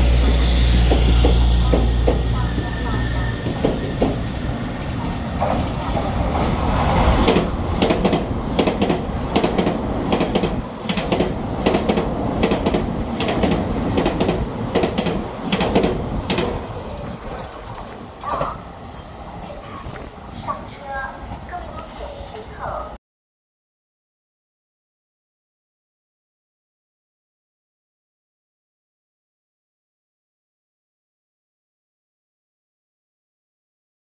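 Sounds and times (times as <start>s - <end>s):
wheels clicking over rail joints: 0.0s - 18.8s
train passing through station: 0.0s - 23.0s.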